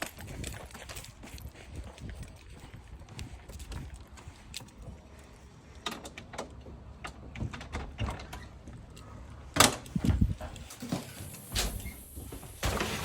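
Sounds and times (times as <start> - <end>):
footsteps: 0.0 - 5.6.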